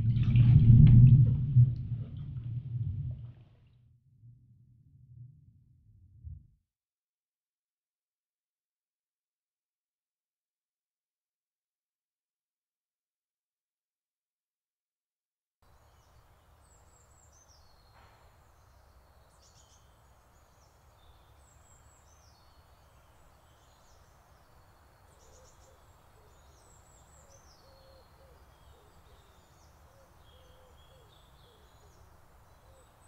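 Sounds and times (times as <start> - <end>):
low steady rumble: 0.0 - 6.6
faint birds chirping: 15.7 - 33.0.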